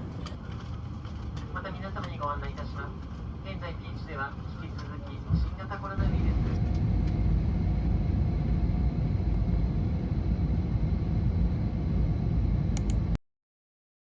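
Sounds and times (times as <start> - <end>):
low vehicle rumble: 6.0 - 12.8.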